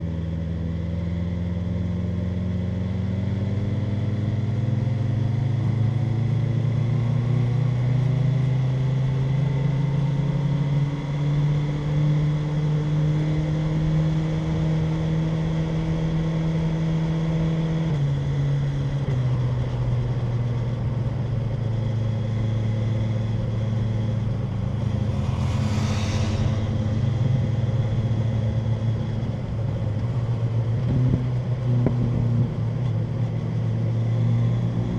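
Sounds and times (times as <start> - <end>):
motorcycle engine revving: 21.2 - 32.5
brief rushing noise: 24.2 - 28.7.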